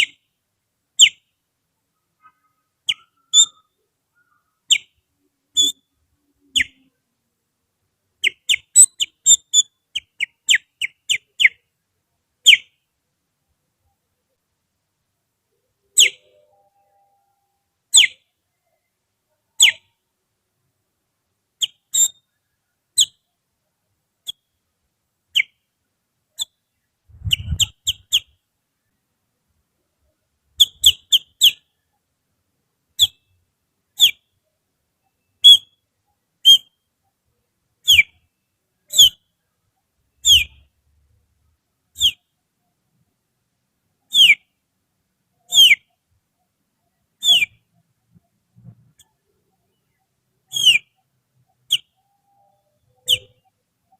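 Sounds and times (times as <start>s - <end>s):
finger whistling birdsong: 2.9s - 4.9s, 27.1s - 28.3s, 36.4s - 36.7s, 40.2s - 40.6s, 42.0s - 42.2s, 45.5s - 45.8s, 47.2s - 47.6s, 50.5s - 51.0s, 51.7s - 53.4s.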